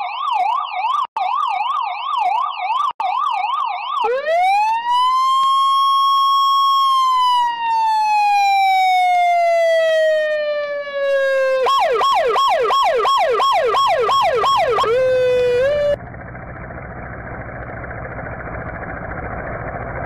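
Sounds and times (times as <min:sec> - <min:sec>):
police car siren wailing and yelping: 0:00.0 - 0:16.0.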